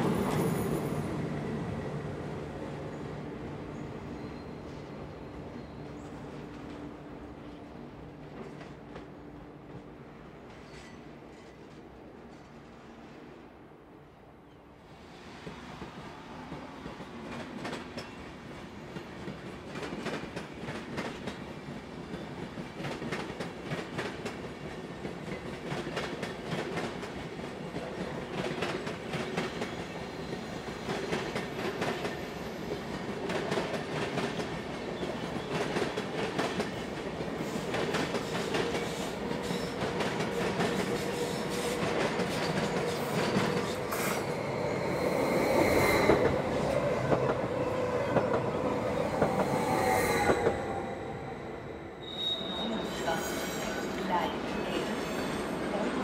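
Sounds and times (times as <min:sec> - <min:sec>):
high wheel squeal: 0:43.6 - 0:46.8, 0:48.8 - 0:54.0.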